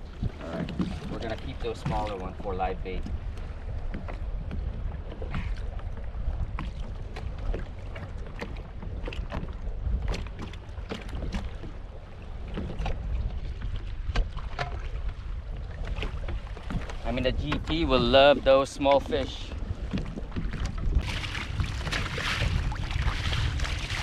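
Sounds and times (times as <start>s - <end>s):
wind buffeting microphone: 0.0s - 24.0s
clicks and knocks on kayak: 14.0s - 15.2s.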